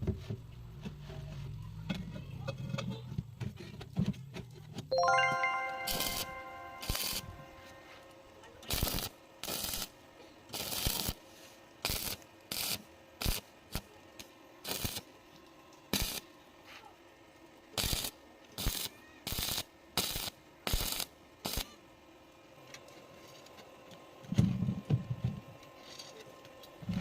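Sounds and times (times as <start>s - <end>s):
tack welding bursts: 8.7s - 9.9s, 10.5s - 11.2s, 11.8s - 13.8s, 14.6s - 15.0s, 15.9s - 16.2s, 17.8s - 21.6s.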